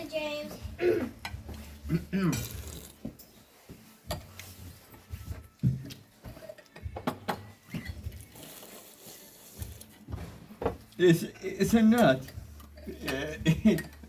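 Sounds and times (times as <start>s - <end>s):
cutlery and crockery clinking: 1.0s - 8.8s, 10.6s - 14.0s.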